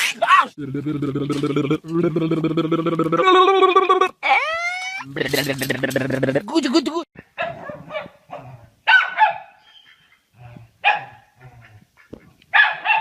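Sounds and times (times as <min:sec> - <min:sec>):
dog barking: 0:07.4 - 0:09.6, 0:10.8 - 0:11.3, 0:12.5 - 0:13.0.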